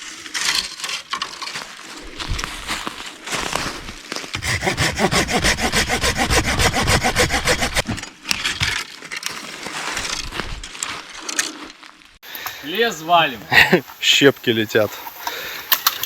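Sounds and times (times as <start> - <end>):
hand saw cutting wood: 4.4 - 8.0.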